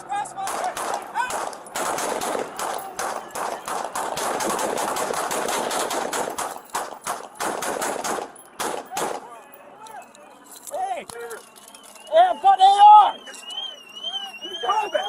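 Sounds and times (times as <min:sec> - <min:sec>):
rapid gunfire: 0:00.5 - 0:09.2.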